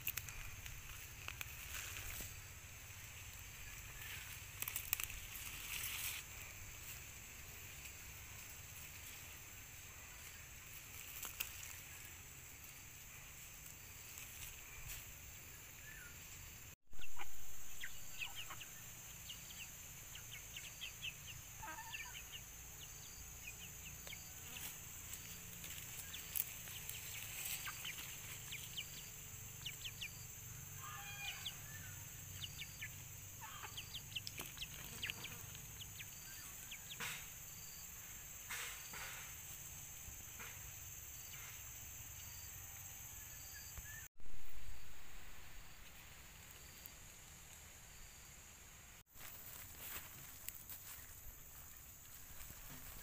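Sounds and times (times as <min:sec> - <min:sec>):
steady high hiss: 0:00.0 - 0:53.0
chickens clucking: 0:17.0 - 0:18.7, 0:26.6 - 0:28.8, 0:32.4 - 0:37.3.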